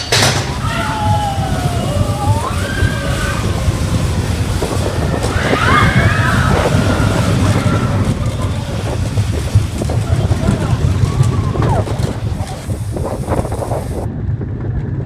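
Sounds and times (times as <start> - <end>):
riders screaming: 0.0 - 14.1
roller coaster rumbling on track: 0.0 - 15.0
wind buffeting microphone: 0.0 - 15.0.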